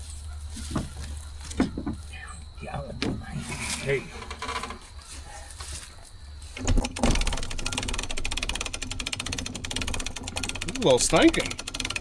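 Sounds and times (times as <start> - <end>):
small motor rattling: 6.6 - 12.0.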